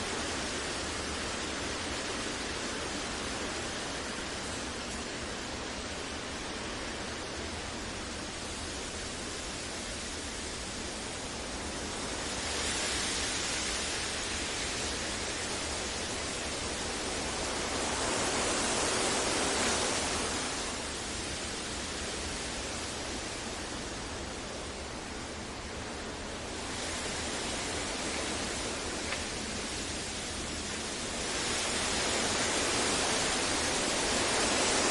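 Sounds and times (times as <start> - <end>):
rushing hiss noise: 0.0 - 34.9.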